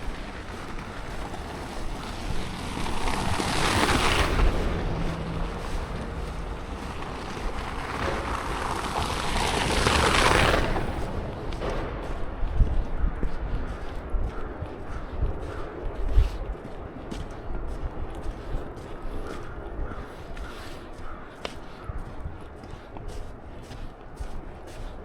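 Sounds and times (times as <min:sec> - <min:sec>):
tyres rushing through slush: 0:00.0 - 0:11.6
wind rumble on microphone: 0:00.0 - 0:25.0.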